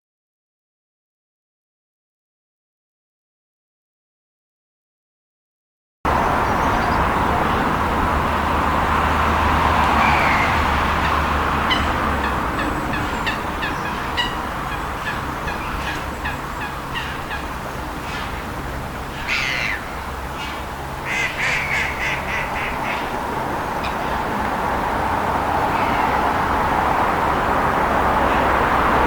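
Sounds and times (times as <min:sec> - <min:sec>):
distant traffic hum: 0:06.1 - 0:29.0
gull calling: 0:09.8 - 0:18.5, 0:19.1 - 0:24.6.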